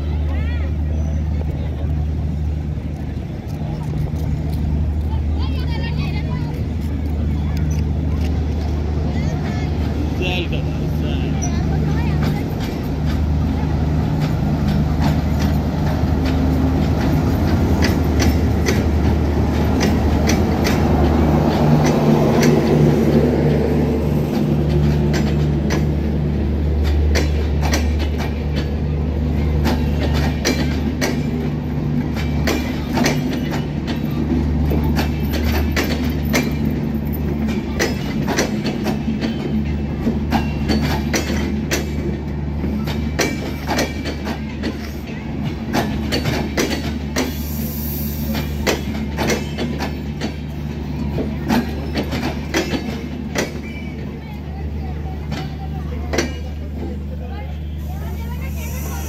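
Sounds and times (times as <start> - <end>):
diesel locomotive droning: 0.0 - 59.0
wheels clicking over rail joints: 11.3 - 57.1.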